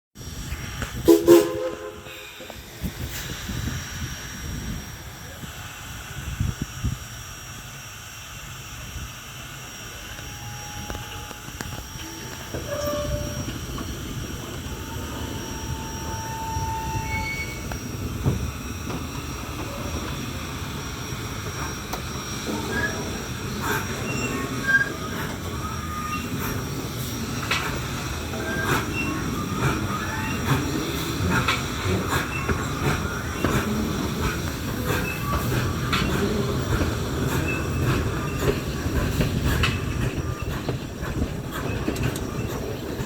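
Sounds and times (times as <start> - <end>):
train rolling rumble: 0.2 - 43.0
rail joint clicks: 0.4 - 4.3, 9.2 - 43.0
wheel flanges squealing: 9.8 - 43.0.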